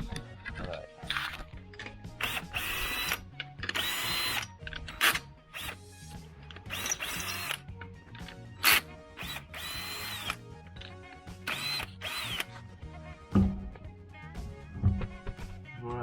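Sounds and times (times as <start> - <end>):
music with steady beat: 0.9 - 16.0
power tool whining: 2.2 - 5.8, 6.6 - 7.6, 8.6 - 10.4, 11.4 - 12.6.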